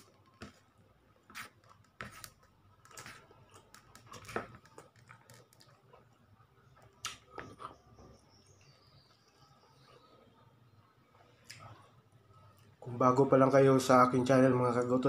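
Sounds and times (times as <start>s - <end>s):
close-up chewing of rice: 0.0s - 8.0s.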